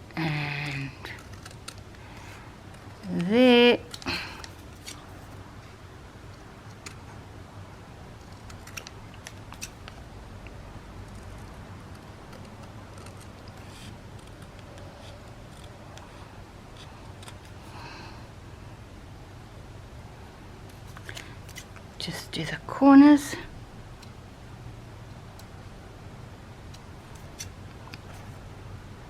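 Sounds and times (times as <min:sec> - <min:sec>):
low steady hum: 0:00.0 - 0:29.0
scissors snipping paper: 0:00.4 - 0:02.1, 0:08.2 - 0:10.0, 0:11.0 - 0:15.8.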